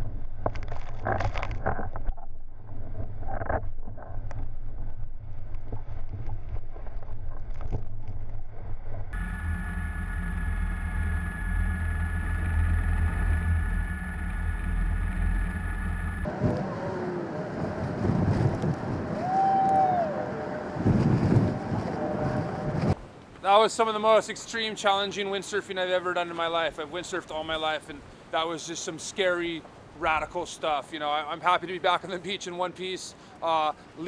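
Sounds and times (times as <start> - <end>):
faint high whine: 8.4 - 23.0
wind buffeting microphone: 9.1 - 23.1.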